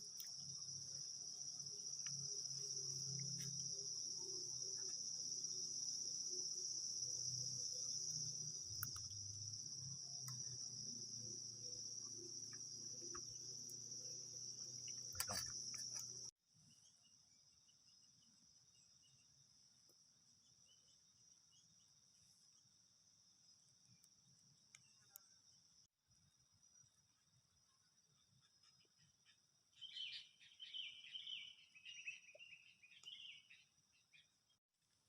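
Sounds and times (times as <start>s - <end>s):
night insects trilling: 0.0s - 16.3s.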